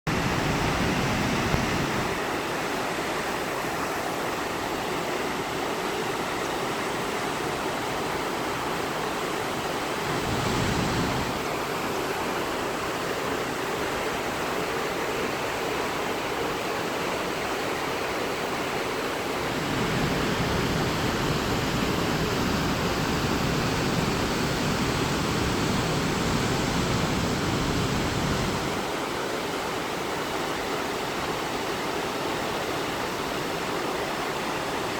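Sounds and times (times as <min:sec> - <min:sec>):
waterfall rushing and splashing: 0:00.1 - 0:34.9.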